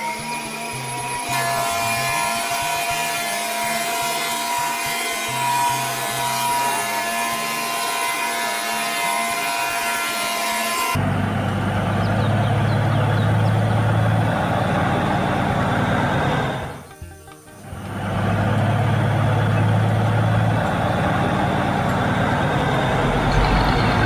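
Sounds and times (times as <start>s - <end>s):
rasping mechanical whine: 0.0s - 24.0s
truck engine running: 10.6s - 24.0s.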